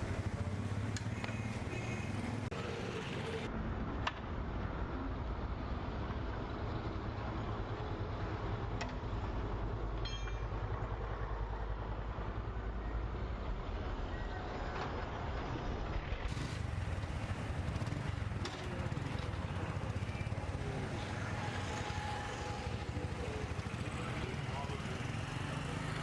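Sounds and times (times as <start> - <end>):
ticks: 0.8 - 1.5.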